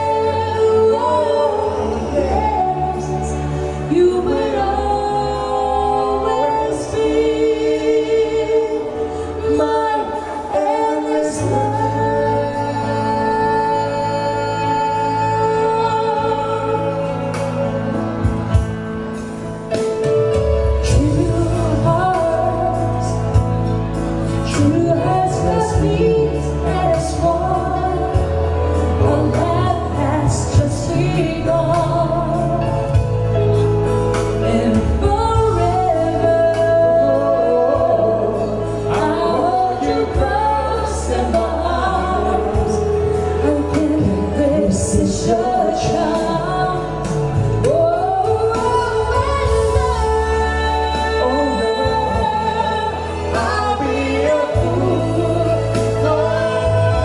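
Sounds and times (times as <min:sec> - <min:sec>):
bass guitar: 0:00.0 - 0:57.0
person singing: 0:00.0 - 0:57.0
drums: 0:14.6 - 0:57.0.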